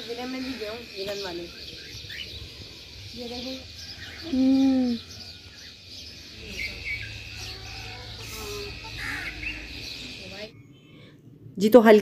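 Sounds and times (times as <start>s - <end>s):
birds chirping and twittering: 0.0s - 12.0s.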